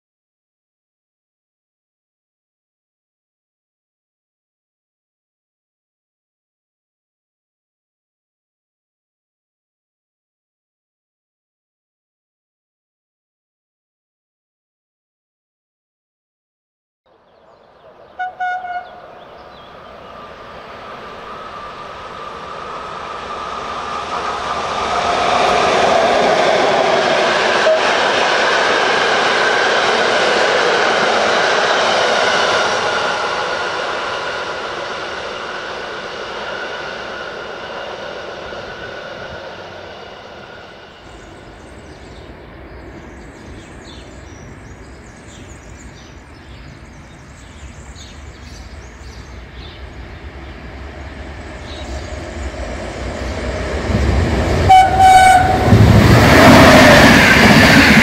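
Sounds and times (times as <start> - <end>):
locomotive and wheels on rails: 17.1 - 58.0
train horn: 18.0 - 19.2, 26.8 - 28.3, 54.6 - 57.0.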